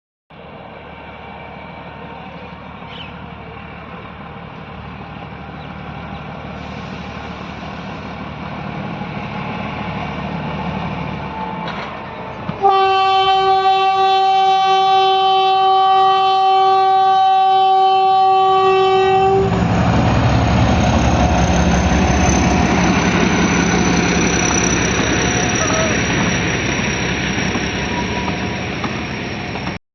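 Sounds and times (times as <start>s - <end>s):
train rumbling: 0.3s - 29.8s
loud train horn blast: 12.6s - 19.7s.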